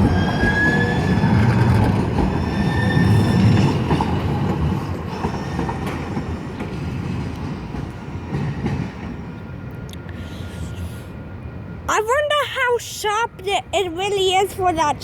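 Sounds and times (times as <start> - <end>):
train wheels squealing: 0.0 - 4.4, 5.1 - 6.1
train rumbling on tracks: 0.0 - 15.0.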